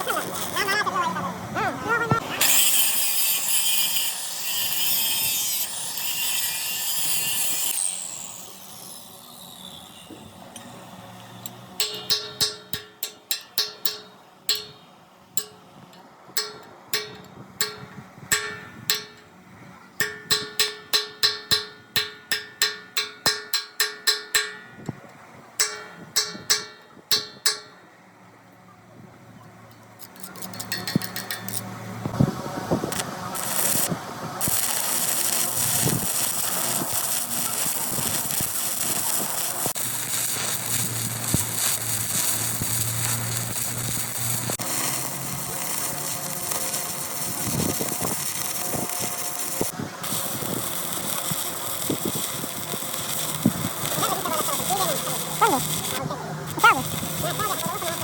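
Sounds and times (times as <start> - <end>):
hammer striking steel: 10.0 - 19.4, 20.0 - 27.9, 30.0 - 31.7.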